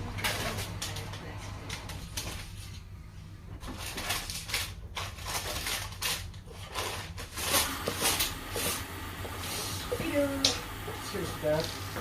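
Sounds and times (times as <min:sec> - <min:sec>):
plastic bag rustling and crinkling: 0:00.1 - 0:02.9, 0:03.6 - 0:10.4.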